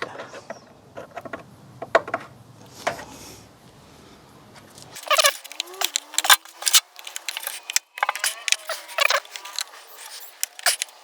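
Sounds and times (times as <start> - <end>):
screwdriver clicking on metal screws: 4.9 - 11.0.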